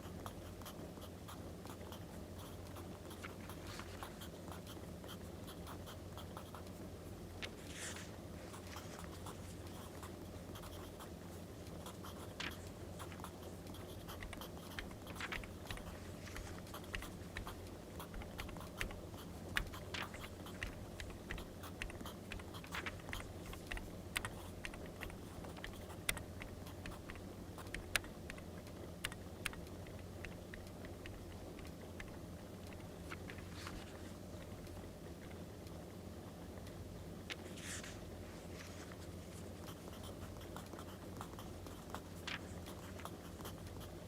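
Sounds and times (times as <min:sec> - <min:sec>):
steady low hum: 0:00.0 - 0:44.0
pen scratching on paper: 0:11.8 - 0:28.0.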